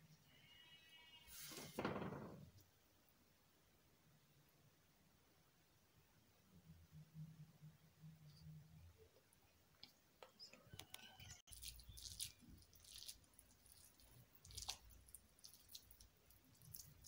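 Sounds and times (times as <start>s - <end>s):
hands rolling meat in flour: 11.5s - 17.0s.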